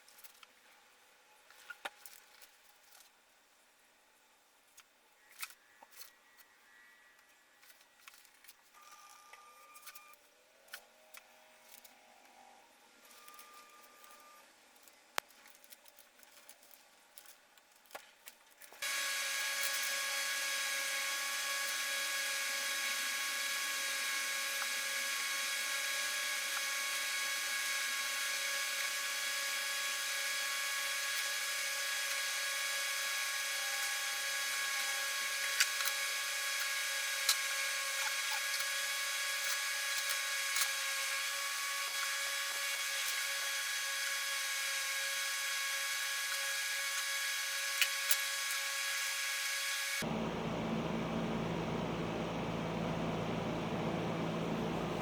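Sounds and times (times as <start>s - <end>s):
clicks and knocks of tools and wood: 7.2s - 12.4s, 13.0s - 18.8s
high-speed power tool whining: 18.8s - 55.0s.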